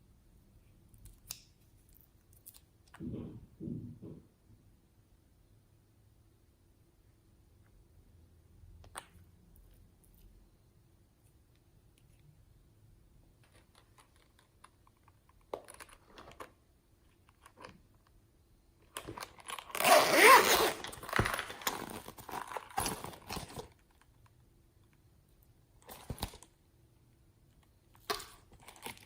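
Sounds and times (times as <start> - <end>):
crinkling tearing rustles: 19.0 - 24.2.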